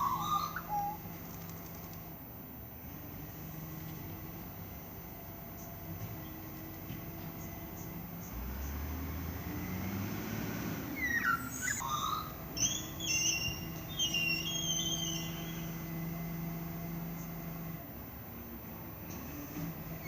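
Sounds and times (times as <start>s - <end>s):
high gliding chirps and whistles: 0.0s - 1.6s, 11.0s - 15.8s
garbage truck engine humming: 0.0s - 20.0s.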